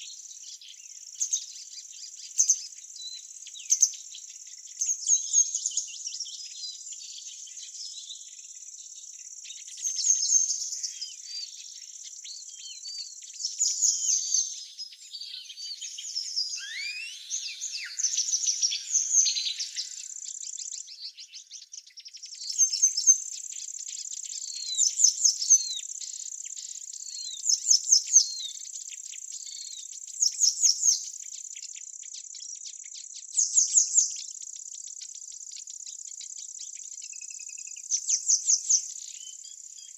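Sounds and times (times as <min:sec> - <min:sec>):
birds chirping and singing: 0:00.0 - 0:31.1
high-pitched insect trill: 0:15.3 - 0:21.1.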